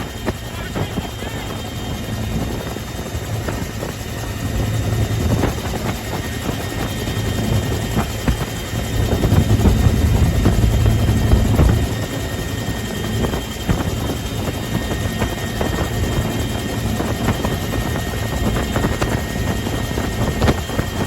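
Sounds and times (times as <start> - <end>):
helicopter rotor rumble: 0.0 - 21.0
high whine: 6.9 - 14.3.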